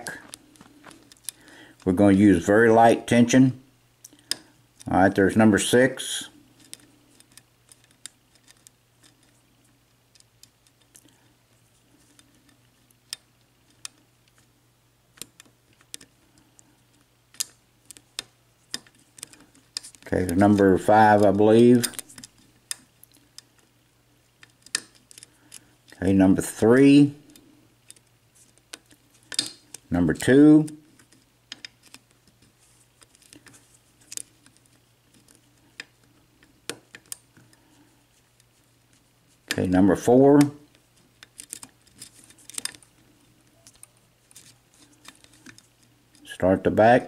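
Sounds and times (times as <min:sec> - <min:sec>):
lock pick clicking on pins: 0:28.7 - 0:29.8.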